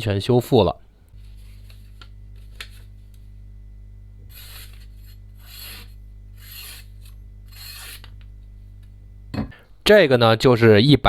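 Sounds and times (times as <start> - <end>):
knife slicing through paper: 4.3 - 8.1.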